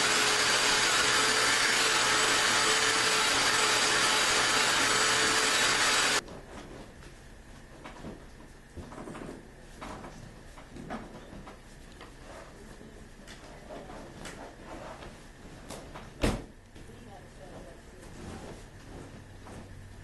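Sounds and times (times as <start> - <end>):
vacuum sucking water: 0.0 - 6.2.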